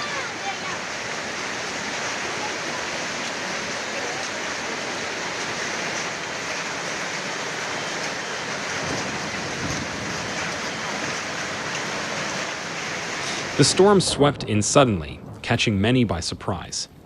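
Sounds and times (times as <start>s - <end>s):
hail and rain pelting: 0.0s - 17.0s.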